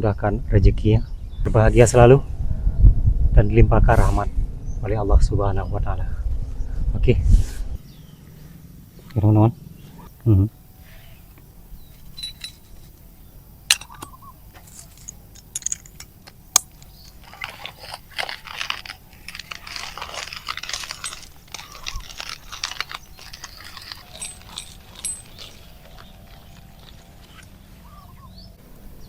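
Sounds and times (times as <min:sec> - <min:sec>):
crunching and rustling: 0:10.9 - 0:28.2.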